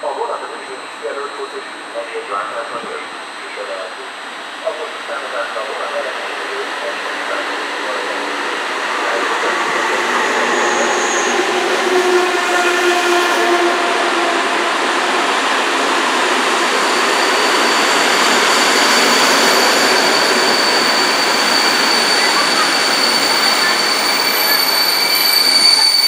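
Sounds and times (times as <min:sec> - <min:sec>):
locomotive whine: 0:00.0 - 0:26.0
train wheels rushing on rails: 0:02.6 - 0:26.0
wheels squealing: 0:16.3 - 0:26.0.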